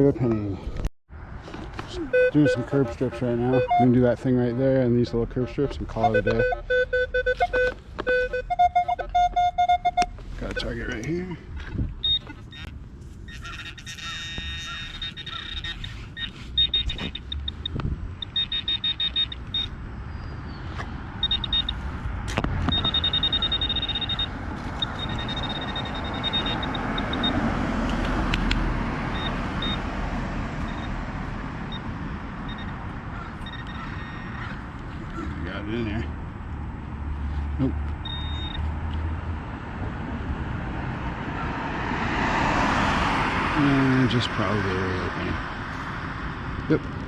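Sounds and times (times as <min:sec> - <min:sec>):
pinpointer probe beeping: 0:02.1 - 0:04.0, 0:05.4 - 0:11.1, 0:12.0 - 0:12.7, 0:13.3 - 0:19.8, 0:21.2 - 0:21.9, 0:22.6 - 0:27.4, 0:29.1 - 0:29.8, 0:30.6 - 0:31.0, 0:32.5 - 0:34.4, 0:38.0 - 0:38.7.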